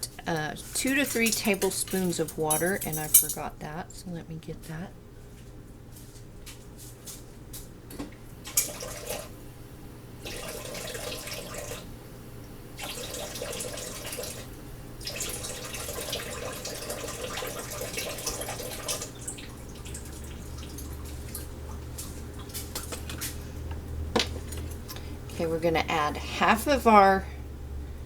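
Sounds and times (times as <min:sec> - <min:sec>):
kitchen tap running: 0:00.0 - 0:03.4, 0:08.4 - 0:09.4, 0:10.2 - 0:11.9, 0:12.8 - 0:23.4.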